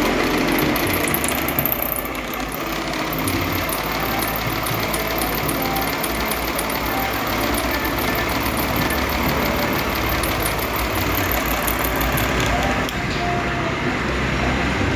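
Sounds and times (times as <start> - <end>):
fast even ticking: 0.0 - 13.0
electric fan rattling: 0.0 - 13.3.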